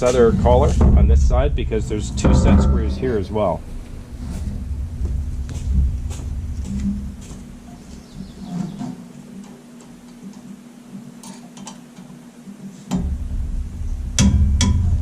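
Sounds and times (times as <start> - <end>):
low rumble: 0.0 - 8.3
metal clank: 0.7 - 7.2.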